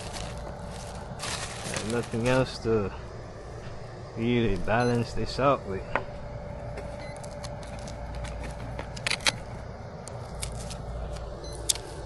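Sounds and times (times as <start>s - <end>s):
handling rustles: 0.0s - 2.5s
low background rumble: 0.0s - 12.0s.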